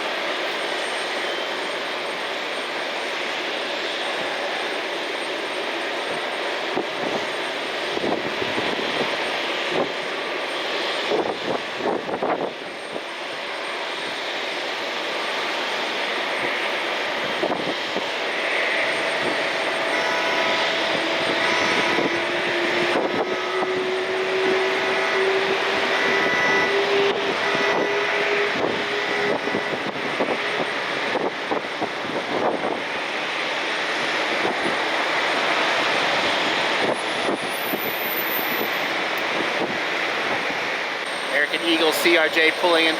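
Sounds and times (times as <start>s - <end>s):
jet engines roaring: 0.0s - 42.9s
turbine whine rising in pitch: 18.2s - 42.9s.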